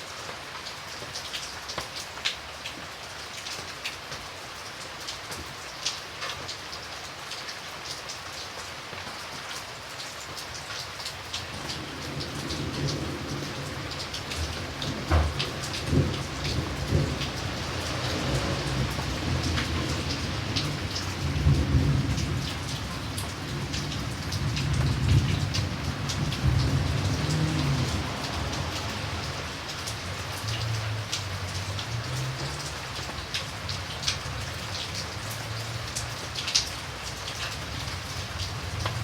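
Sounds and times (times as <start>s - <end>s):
steady rain falling: 0.0s - 39.0s
low rolling thunder: 11.5s - 30.5s.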